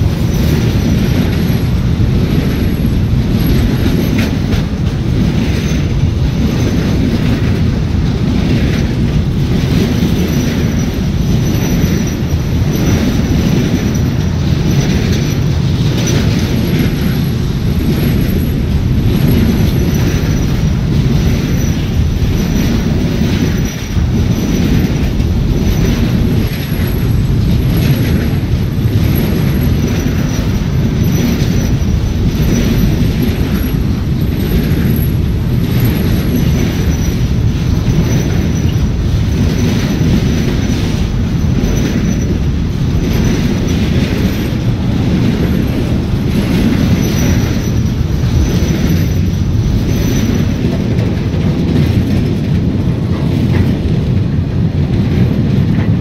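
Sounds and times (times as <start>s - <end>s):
steel wheels rumbling on rail: 0.0s - 56.0s
high wheel squeal: 25.6s - 44.6s.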